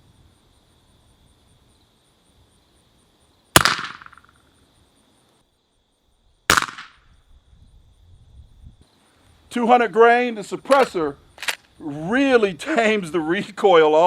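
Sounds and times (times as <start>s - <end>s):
suppressed rifle shots: 3.6s - 4.3s, 6.5s - 7.0s.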